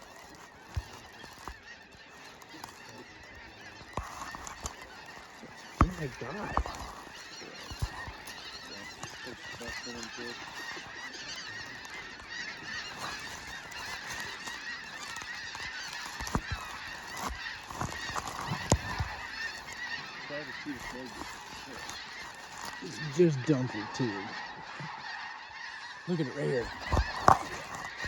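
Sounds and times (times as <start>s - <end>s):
geese honking: 0.0s - 28.0s.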